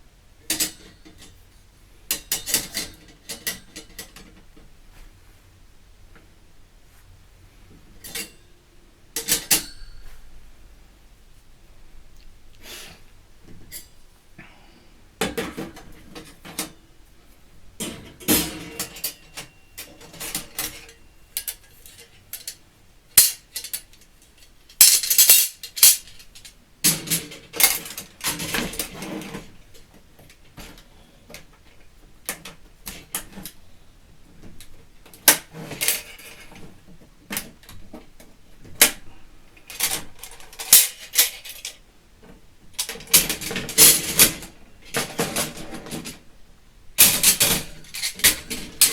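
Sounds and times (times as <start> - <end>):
metal parts clinking and clattering: 17.8 - 29.4, 39.7 - 41.8, 47.0 - 48.9.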